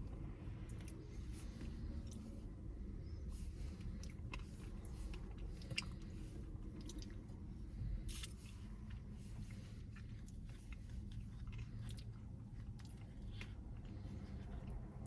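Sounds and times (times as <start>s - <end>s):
wet chewing: 8.8s - 15.0s.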